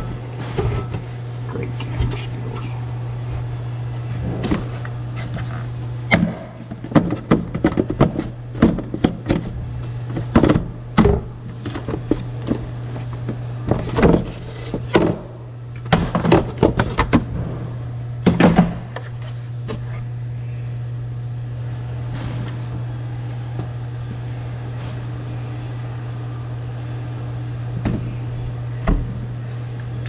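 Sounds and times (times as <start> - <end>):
parts and tools clattering: 0.0 - 1.2, 4.0 - 19.9
steady low hum: 0.0 - 30.0.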